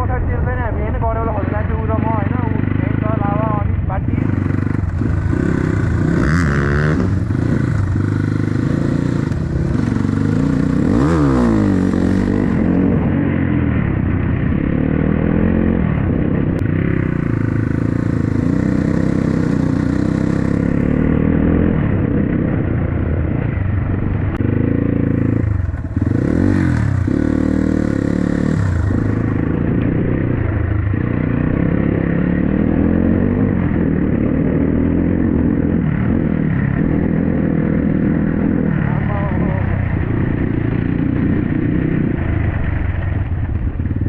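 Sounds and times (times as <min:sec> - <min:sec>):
dirt bike engine revving: 0:01.1 - 0:44.0.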